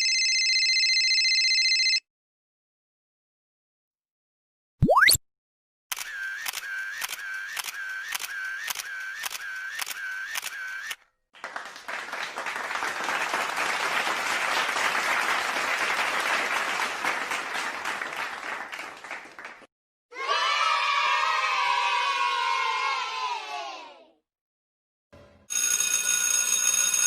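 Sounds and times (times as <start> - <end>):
camera shutter clicking: 5.9 - 11.0
applause: 11.3 - 19.7.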